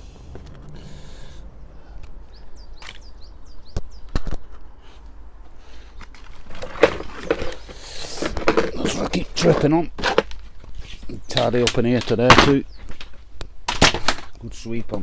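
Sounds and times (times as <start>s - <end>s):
small bird chirping: 1.7s - 4.2s
clattering of handled objects: 5.9s - 14.4s.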